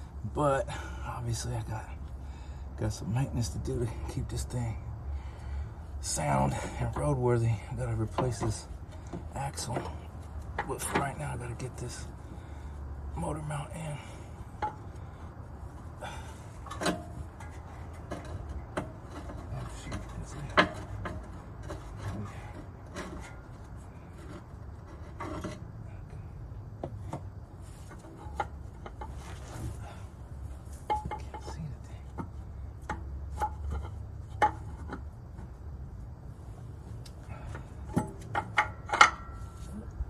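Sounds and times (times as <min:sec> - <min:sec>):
low steady hum: 0:00.0 - 0:40.0
metal parts and tools clinking: 0:16.0 - 0:25.6.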